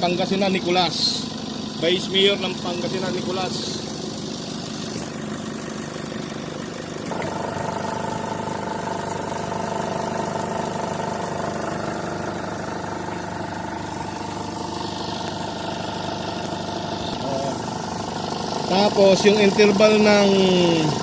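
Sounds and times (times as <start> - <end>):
ac compressor whine: 0.0 - 21.0
car engine idling: 0.0 - 21.0
compressor click: 6.9 - 8.3.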